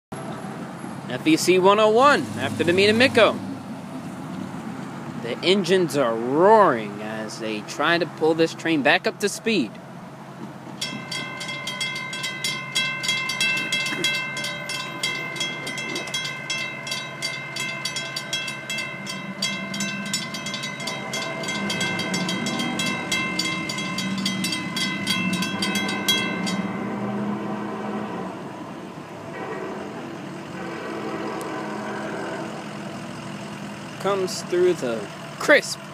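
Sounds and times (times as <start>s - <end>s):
diesel locomotive engines rumbling: 0.2s - 35.9s
crossing bell ringing rapidly: 10.8s - 28.4s, 29.2s - 35.9s.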